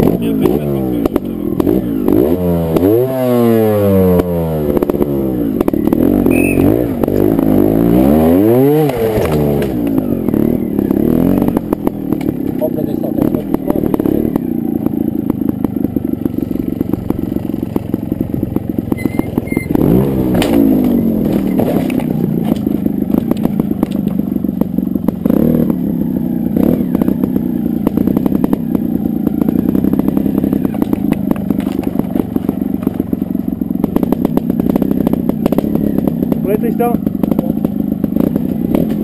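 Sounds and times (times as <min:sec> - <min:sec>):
motorcycle engine running: 0:00.0 - 0:39.0
motorcycle throttle blip: 0:05.6 - 0:07.3.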